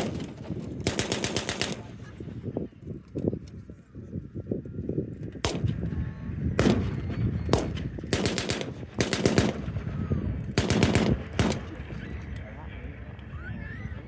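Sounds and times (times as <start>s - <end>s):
gunfire bursts: 0.0s - 2.2s, 5.4s - 5.9s, 6.6s - 9.9s, 10.6s - 11.9s
gunshots: 0.0s - 2.2s, 5.4s - 5.9s, 6.6s - 9.9s, 10.6s - 11.9s
steady low rumble: 0.0s - 14.0s.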